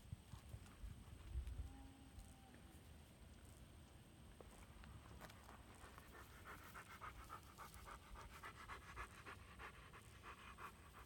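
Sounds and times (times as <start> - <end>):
dog panting: 5.8 - 11.0.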